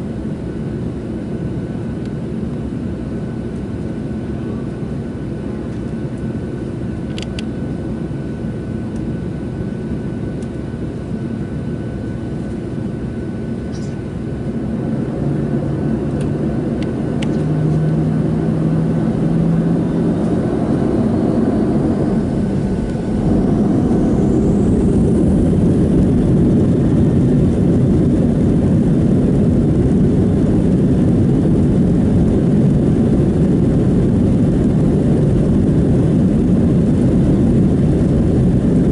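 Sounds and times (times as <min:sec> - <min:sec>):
jet engines rumbling: 0:00.0 - 0:38.9
engine whine rising in pitch: 0:14.5 - 0:38.9.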